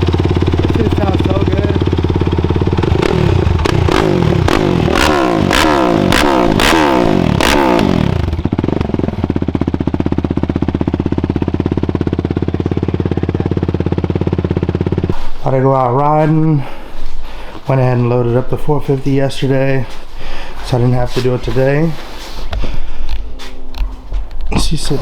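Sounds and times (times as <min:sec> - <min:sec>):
quad engine revving: 0:00.0 - 0:15.2
quad engine idling: 0:00.0 - 0:17.0.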